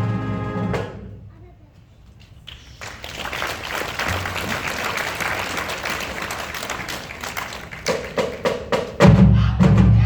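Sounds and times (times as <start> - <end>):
audience applauding: 2.4 - 8.5.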